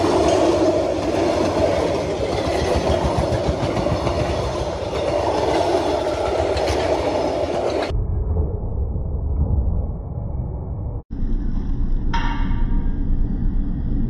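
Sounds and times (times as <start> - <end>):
train wheels rolling on rails: 0.0 - 7.9.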